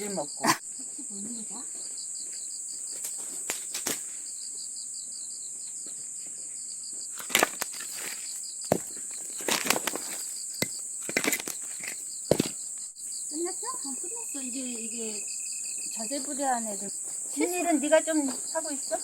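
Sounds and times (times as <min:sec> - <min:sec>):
insects chirping: 0:00.0 - 0:19.0
firewood knocking while stacked: 0:08.7 - 0:12.6.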